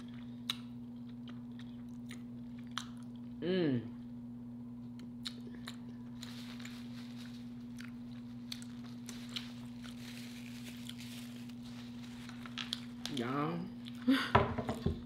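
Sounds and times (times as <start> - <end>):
person chewing food: 0.0 - 3.4, 4.9 - 13.2, 13.8 - 14.1
low steady hum: 0.0 - 15.0.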